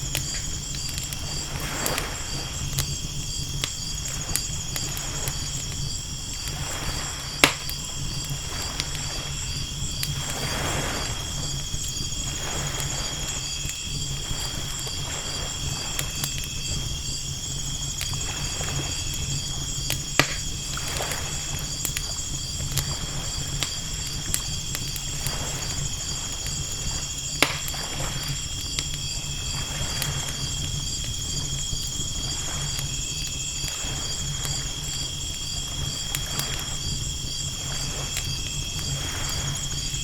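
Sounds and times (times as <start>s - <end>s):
campfire crackling: 0.0s - 40.0s
night insects chirping: 0.0s - 40.0s
waves washing in: 1.3s - 2.8s, 6.3s - 16.0s.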